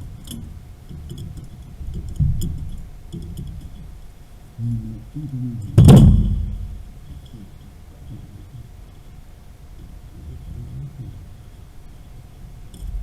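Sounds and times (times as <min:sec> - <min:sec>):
knocks on water pipes: 0:05.8 - 0:06.8
loud ringing metal strike: 0:05.8 - 0:06.9.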